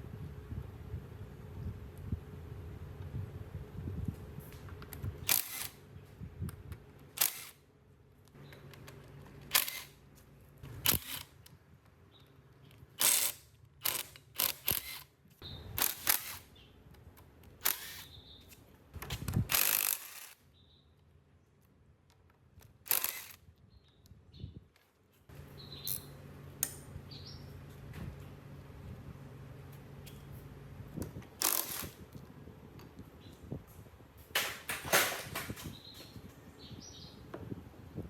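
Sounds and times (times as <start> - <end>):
sharp tool clicks: 4.9 - 5.8, 7.1 - 7.6, 8.7 - 10.0, 10.7 - 11.6, 13.0 - 15.1, 15.7 - 18.2, 19.0 - 20.4, 22.1 - 23.4, 31.0 - 32.0.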